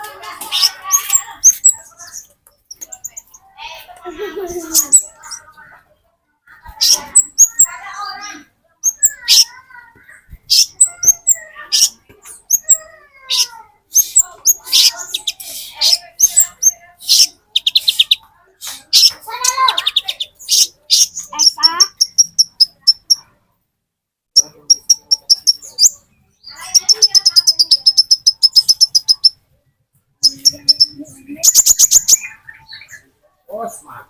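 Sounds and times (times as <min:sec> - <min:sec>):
bird singing high sharp chirps: 0:08.8 - 0:09.6, 0:10.5 - 0:23.3, 0:24.4 - 0:29.4, 0:30.2 - 0:33.1.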